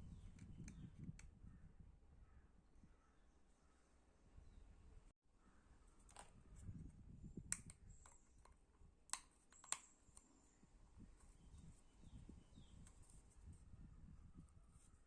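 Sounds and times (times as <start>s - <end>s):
sharp clicks: 7.4s - 10.3s.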